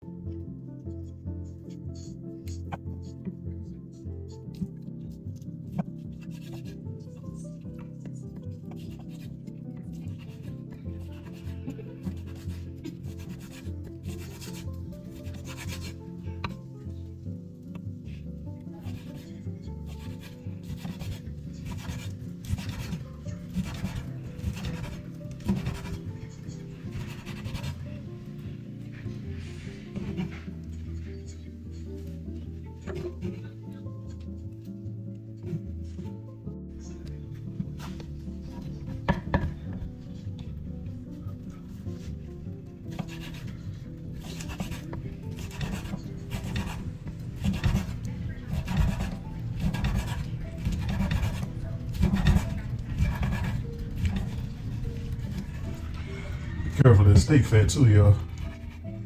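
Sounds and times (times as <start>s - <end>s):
soft background music: 0.0s - 59.0s
knife cutting raw meat: 10.1s - 16.6s, 19.9s - 26.0s, 44.2s - 46.8s, 47.4s - 54.5s.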